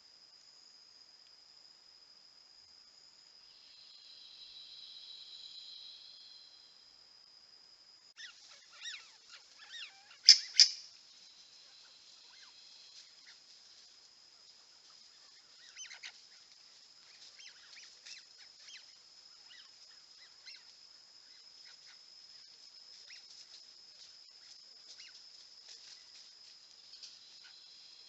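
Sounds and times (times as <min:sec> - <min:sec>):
high-pitched insect hum: 0:00.0 - 0:28.0
short bird calls: 0:08.2 - 0:10.9.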